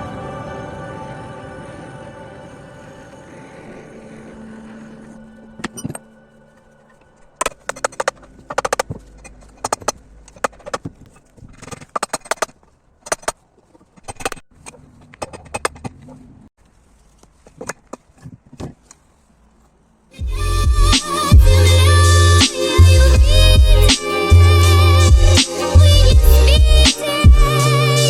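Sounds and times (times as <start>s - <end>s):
tools clicking and knocking: 7.4s - 16.2s.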